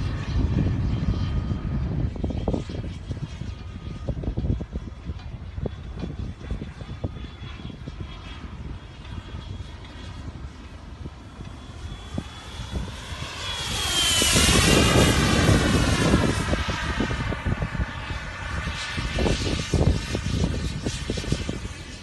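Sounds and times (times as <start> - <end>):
model jet ducted-fan whine: 0.0 - 22.0
wind buffeting microphone: 0.0 - 22.0.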